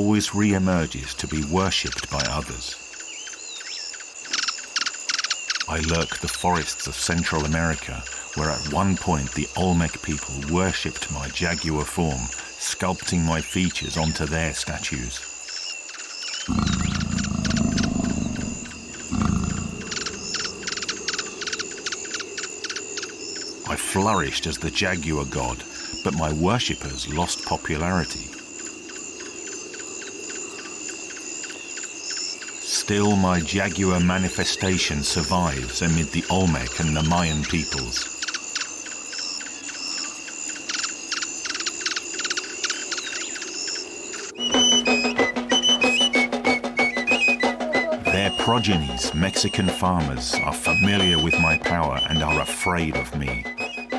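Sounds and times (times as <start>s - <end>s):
night insect or frog trills: 0.0s - 53.9s
rapid pulsed animal calls: 16.4s - 23.6s
high-pitched animal drone: 16.5s - 21.8s
jaguar growling: 16.5s - 22.1s.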